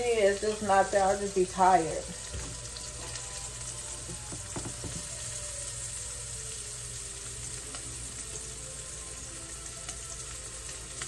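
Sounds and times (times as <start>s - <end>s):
meat sizzling in a pan: 0.0s - 11.0s
faint knocks: 4.2s - 5.1s.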